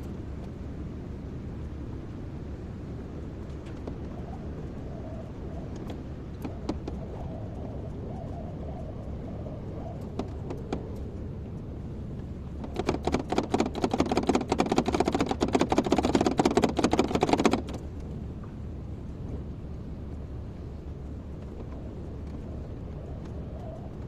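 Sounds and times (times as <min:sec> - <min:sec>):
excavator running: 0:12.5 - 0:17.9
rapid hard clattering knocks: 0:12.6 - 0:17.8.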